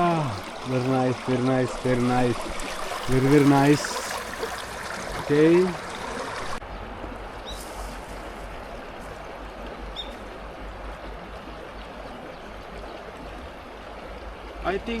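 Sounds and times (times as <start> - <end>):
waterfall rushing: 0.0 - 6.6.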